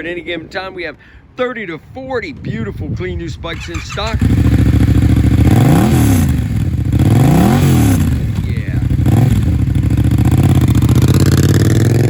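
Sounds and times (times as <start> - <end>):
motorcycle engine revving: 3.5 - 12.0
motorcycle engine running: 3.5 - 12.0.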